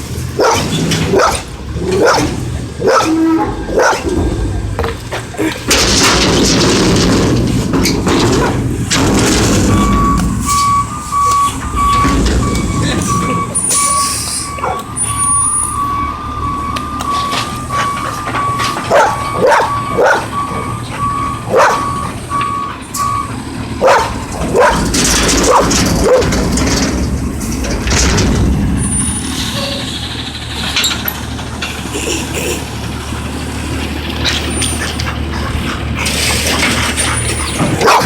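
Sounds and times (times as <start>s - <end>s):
truck backup alarm beeping: 0.0s - 38.0s
truck engine: 0.0s - 38.0s
dog barking: 0.4s - 1.4s, 2.0s - 4.1s, 14.6s - 14.9s, 18.9s - 20.3s, 21.5s - 21.9s, 23.8s - 24.8s, 25.5s - 26.3s, 37.8s - 38.0s
air brakes hissing: 9.8s - 15.8s.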